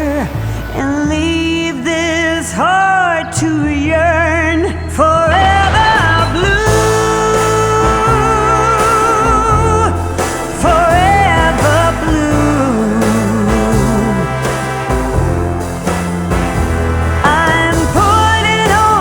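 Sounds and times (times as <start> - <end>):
person singing a ballad: 0.0 - 15.6, 17.1 - 19.0
low musical accompaniment: 5.1 - 19.0.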